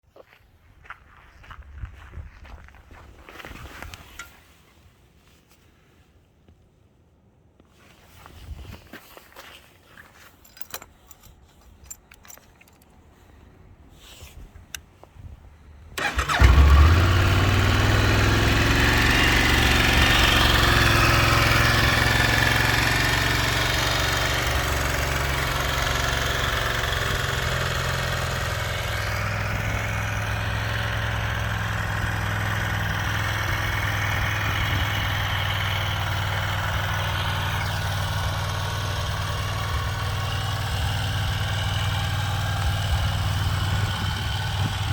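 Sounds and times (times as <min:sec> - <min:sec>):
motorcycle engine starting and idling: 0:15.6 - 0:44.9.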